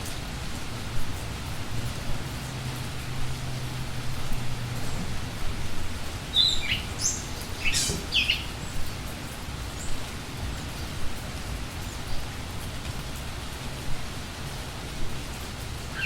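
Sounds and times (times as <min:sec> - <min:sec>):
steady rain hiss: 0:00.0 - 0:16.0
small bird chirping: 0:06.3 - 0:08.5.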